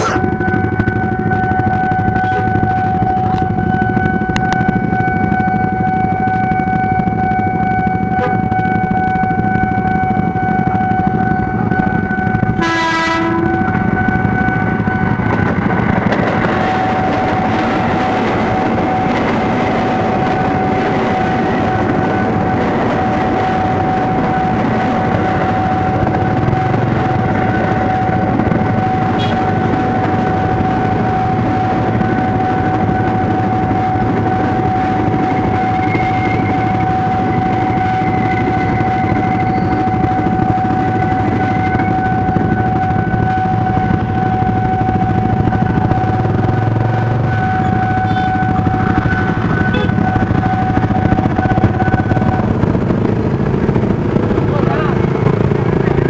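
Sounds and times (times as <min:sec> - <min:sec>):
train horn blast: 0:00.0 - 0:15.5, 0:16.4 - 0:45.3, 0:46.8 - 0:52.5
level crossing warning tone: 0:00.0 - 0:56.0
train wheel and rail noise: 0:00.0 - 0:56.0.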